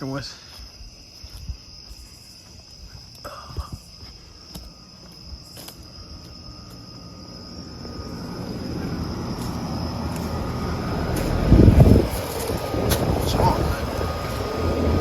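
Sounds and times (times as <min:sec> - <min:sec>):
crickets trilling: 0:00.0 - 0:15.0
air conditioner unit humming: 0:04.4 - 0:15.0.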